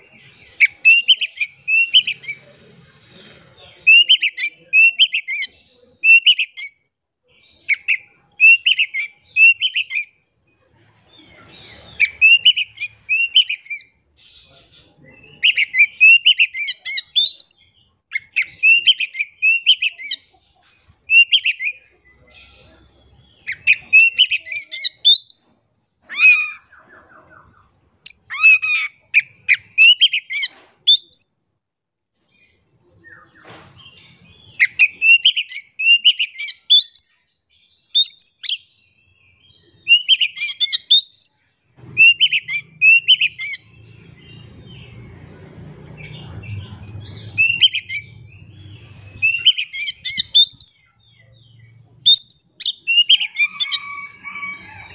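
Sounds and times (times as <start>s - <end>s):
bird singing whistled phrases: 7.7s - 10.2s, 12.0s - 13.9s, 23.4s - 25.5s, 34.6s - 37.2s, 37.8s - 38.6s, 39.8s - 41.4s.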